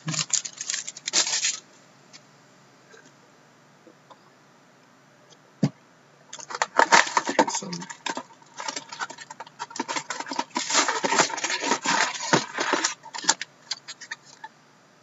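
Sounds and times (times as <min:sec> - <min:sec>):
card packs being torn open: 0:00.0 - 0:01.6, 0:06.4 - 0:14.4
cards crinkling and clicking: 0:00.0 - 0:01.6, 0:06.4 - 0:14.5.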